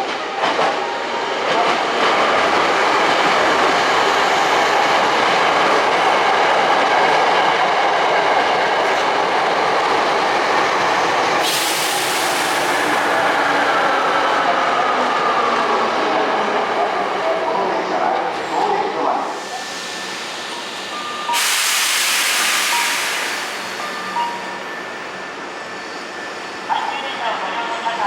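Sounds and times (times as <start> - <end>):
train running noise: 0.0 - 28.0
high hiss: 19.4 - 24.4.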